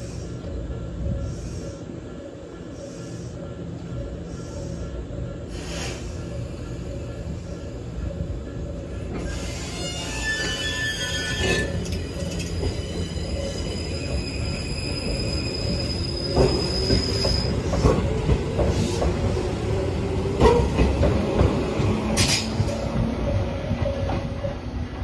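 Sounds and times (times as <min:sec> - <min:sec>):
train wheels rumbling and knocking: 0:07.2 - 0:25.0.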